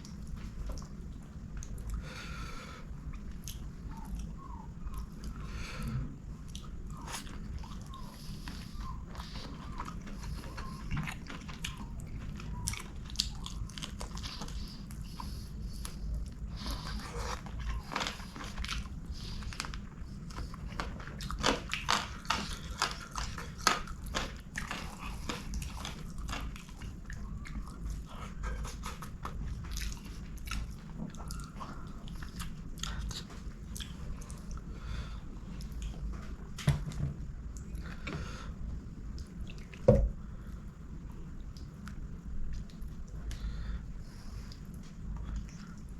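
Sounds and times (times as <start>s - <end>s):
person chewing and biting: 6.5s - 34.6s.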